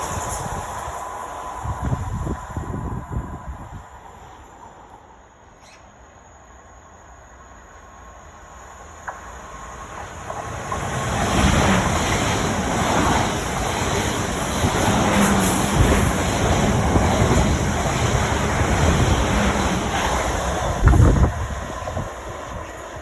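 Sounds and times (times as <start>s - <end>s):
train passing rumble: 0.0s - 23.0s.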